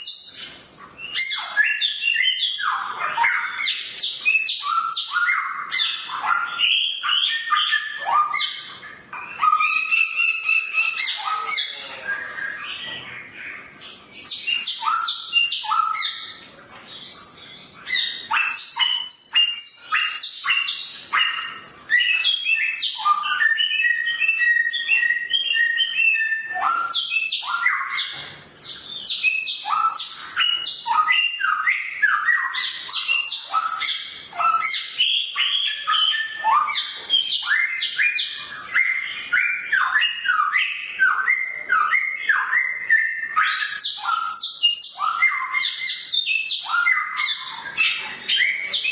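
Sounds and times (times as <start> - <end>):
songbird whistling and trilling: 0.0 - 16.4, 17.0 - 48.9.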